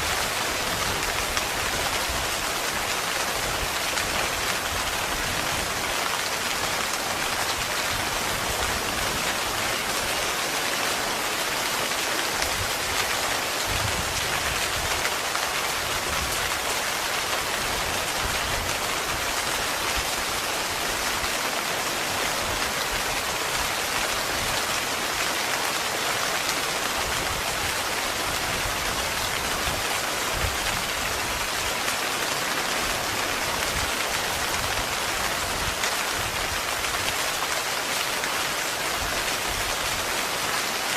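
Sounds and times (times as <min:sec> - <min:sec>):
heavy rain on a tent: 0:00.0 - 0:40.9.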